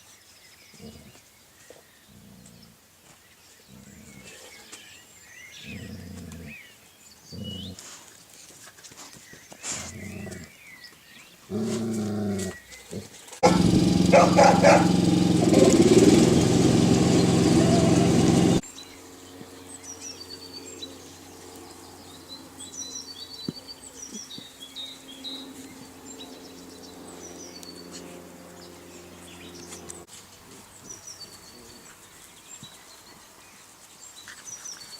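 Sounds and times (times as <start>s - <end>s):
small birds chirping: 12.4s - 34.9s
loud noise: 13.4s - 18.6s.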